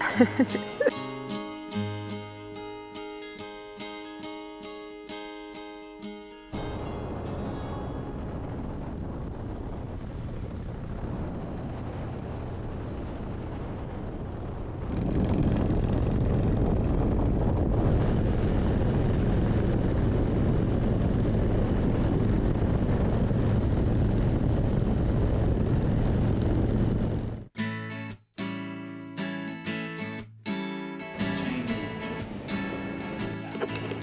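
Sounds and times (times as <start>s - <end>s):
wind and road noise: 6.6s - 27.5s, 31.2s - 34.0s
motorcycle engine running: 14.7s - 17.2s.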